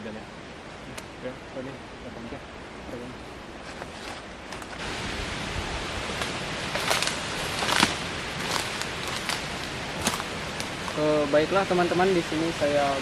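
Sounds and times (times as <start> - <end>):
strong wind through forest: 0.0 - 13.0
crackles of leaves and twigs: 2.9 - 13.0.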